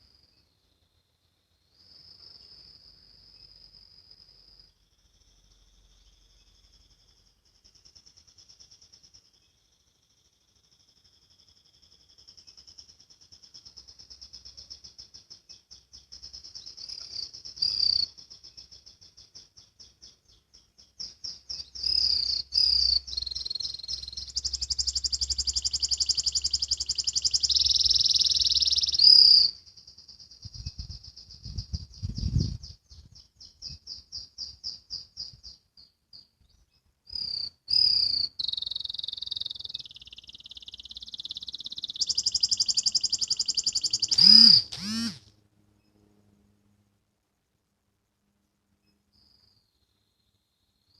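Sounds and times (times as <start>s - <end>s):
canary singing trills: 5.2s - 45.2s.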